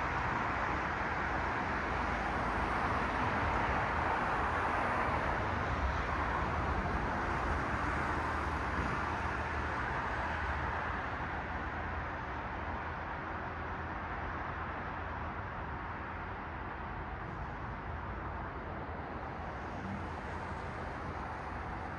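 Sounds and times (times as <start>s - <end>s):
car traffic passing: 16.9s - 21.9s.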